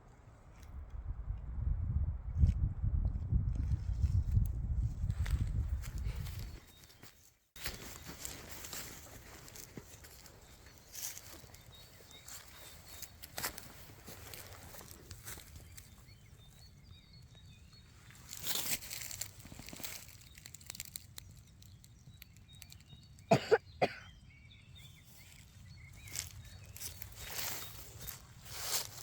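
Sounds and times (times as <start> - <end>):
faint bird chirps: 5.3 - 29.0
footsteps rustling through leaf litter: 7.6 - 15.9, 18.2 - 21.0, 25.3 - 29.0.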